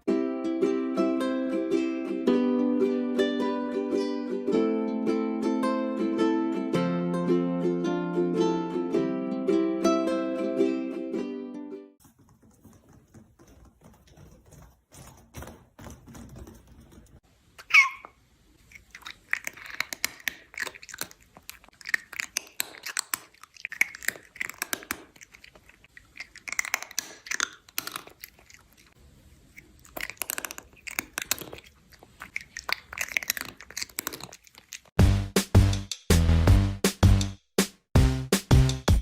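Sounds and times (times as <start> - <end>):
animal chewing crunchy food: 12.0 - 17.8, 18.6 - 35.0
music with heavy beat: 35.0 - 39.0.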